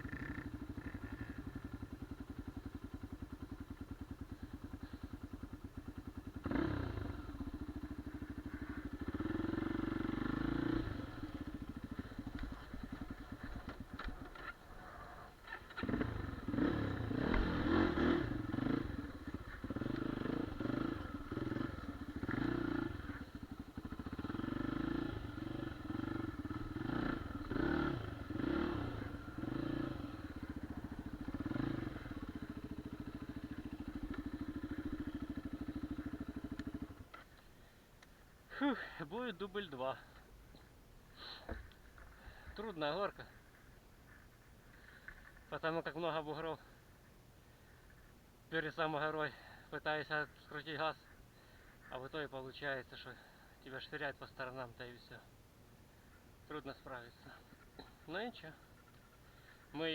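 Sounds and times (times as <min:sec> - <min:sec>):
motorcycle engine revving: 0:00.0 - 0:37.2.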